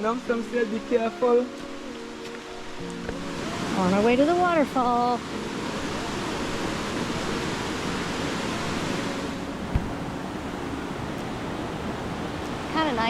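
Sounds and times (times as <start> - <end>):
water rushing: 0.0 - 13.0
low thump: 9.6 - 10.0.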